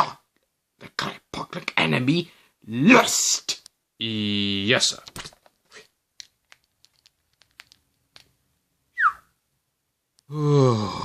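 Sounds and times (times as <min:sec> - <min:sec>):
light irregular clicks: 0:06.2 - 0:08.3
person sighing: 0:10.3 - 0:11.0.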